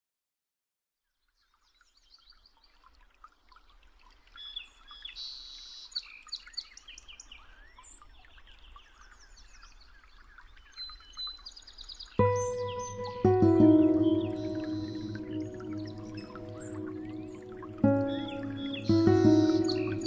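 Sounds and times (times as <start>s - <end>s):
flock of small birds chirping: 4.5s - 20.0s.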